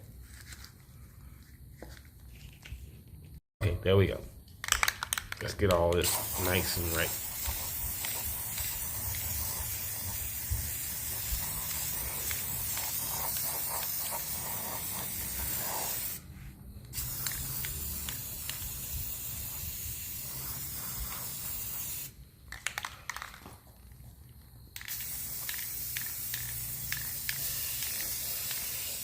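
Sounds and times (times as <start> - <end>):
spray paint can hissing: 5.8 - 16.2, 16.9 - 22.8, 24.8 - 29.0.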